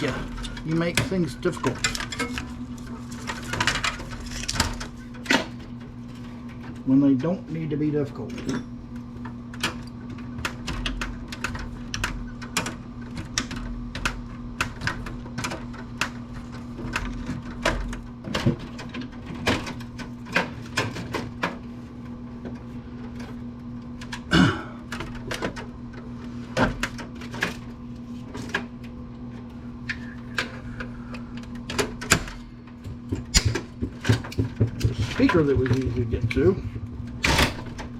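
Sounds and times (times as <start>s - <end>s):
low electrical hum: 0.0s - 37.9s
clicks and knocks on computer case: 31.7s - 37.9s.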